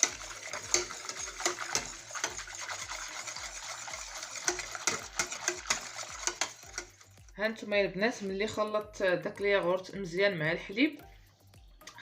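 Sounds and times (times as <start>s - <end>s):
hand whisk beating liquid in bowl: 0.0s - 7.4s.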